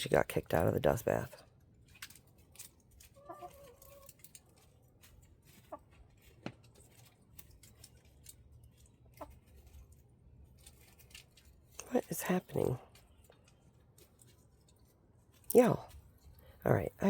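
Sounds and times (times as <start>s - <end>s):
faint clicks and scratches: 1.3s - 16.6s
hen calling softly: 3.2s - 4.1s.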